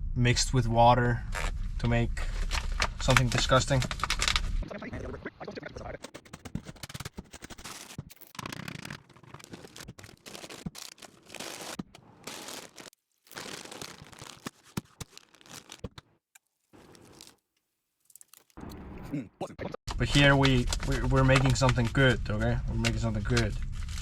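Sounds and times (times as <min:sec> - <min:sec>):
plastic packaging crinkling: 0:02.3 - 0:04.6, 0:06.2 - 0:17.4.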